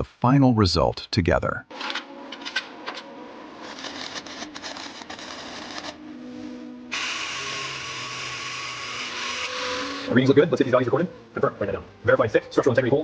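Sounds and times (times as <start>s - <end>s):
power tool hissing and humming: 6.9s - 10.1s.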